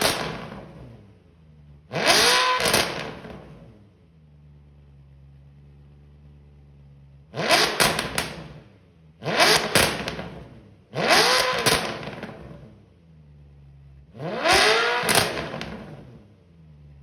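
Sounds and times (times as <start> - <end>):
exhaust cracks: 0.0 - 1.1, 1.8 - 3.7, 6.8 - 12.8, 13.6 - 16.2
car engine revving: 0.0 - 17.0.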